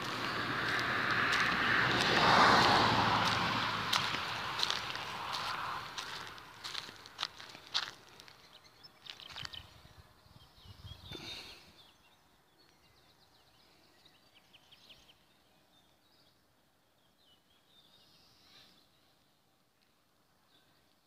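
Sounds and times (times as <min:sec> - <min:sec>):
faint small birds chirping: 0:07.4 - 0:21.0.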